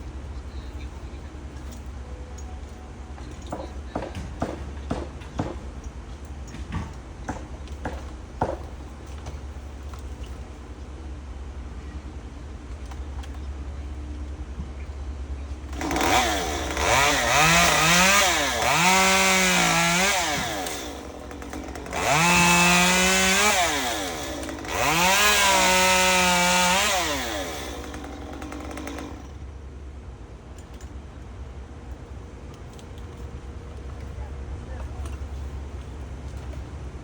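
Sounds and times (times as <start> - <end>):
chainsaw revving: 15.7 - 29.4.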